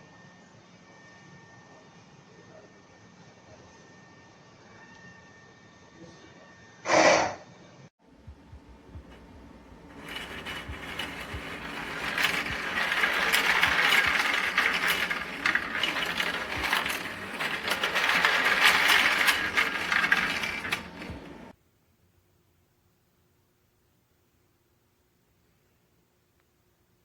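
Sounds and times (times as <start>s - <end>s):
printer motors whirring and clicking: 10.1s - 21.5s.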